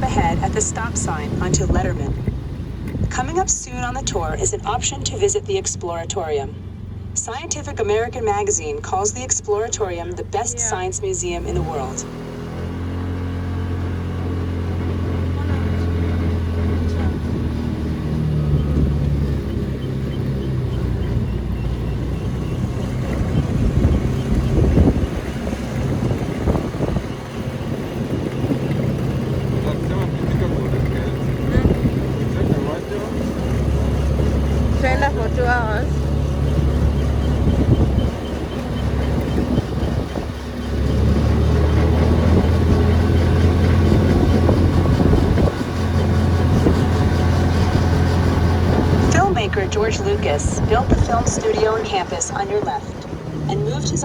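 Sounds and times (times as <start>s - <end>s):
small engine humming: 0.0s - 54.0s
wind on microphone: 21.1s - 30.7s, 36.6s - 54.0s.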